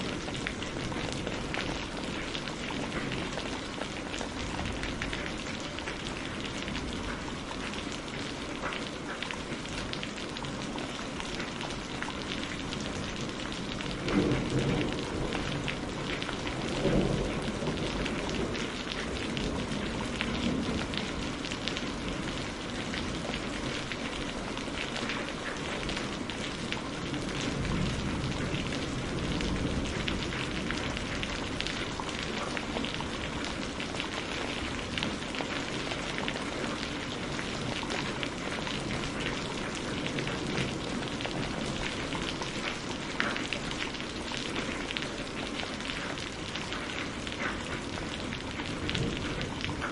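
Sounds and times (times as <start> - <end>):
steady rain: 0.0 - 49.9
thunder rumbles: 12.8 - 23.6, 26.2 - 36.7, 47.9 - 49.9.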